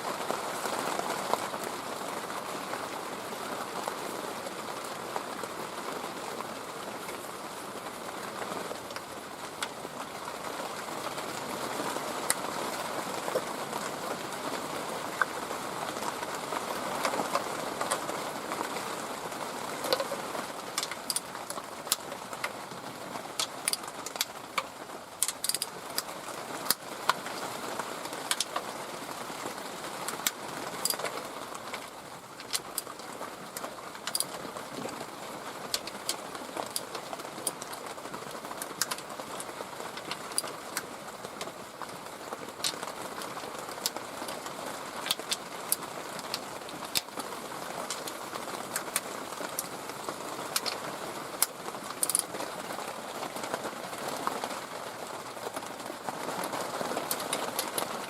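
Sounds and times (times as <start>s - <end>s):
outdoor background hiss: 0.0s - 58.0s
hand tools clicking and tapping: 25.2s - 26.1s, 52.0s - 52.2s.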